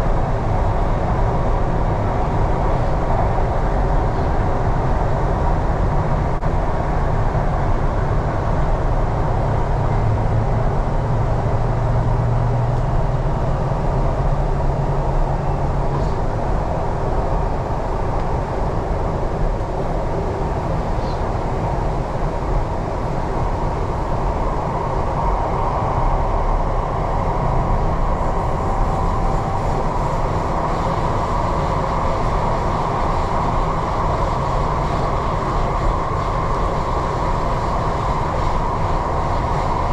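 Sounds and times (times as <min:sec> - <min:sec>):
train wheels rumbling on rail: 0:00.0 - 0:39.9
high whine: 0:08.5 - 0:39.9.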